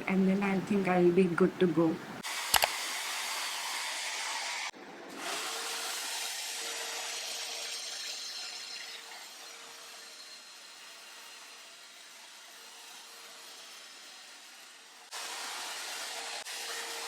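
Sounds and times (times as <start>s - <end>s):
hair dryer blowing: 2.3s - 7.4s
hair dryer switch clicks: 2.5s - 2.8s.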